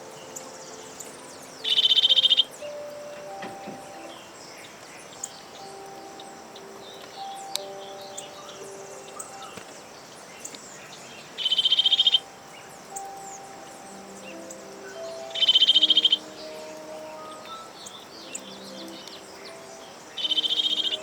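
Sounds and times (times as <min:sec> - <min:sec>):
loud rapid bird trills: 0:00.0 - 0:10.6, 0:11.2 - 0:21.0
faint bird chirps: 0:00.0 - 0:21.0
soft background music: 0:00.0 - 0:21.0.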